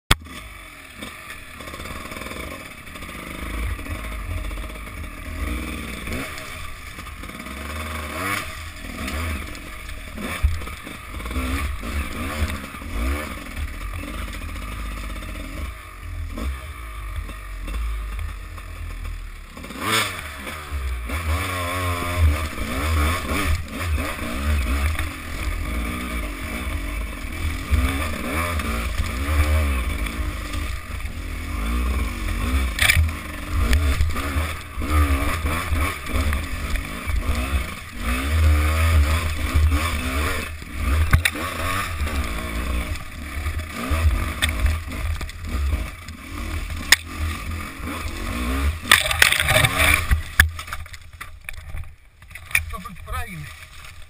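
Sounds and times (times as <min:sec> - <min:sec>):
dirt bike engine revving: 0:00.1 - 0:54.0
bike knocking over rocks: 0:48.8 - 0:52.8.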